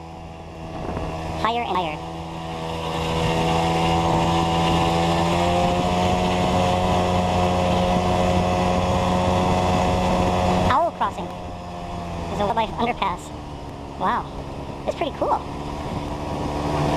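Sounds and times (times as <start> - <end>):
moped engine under throttle: 0.0 - 16.9.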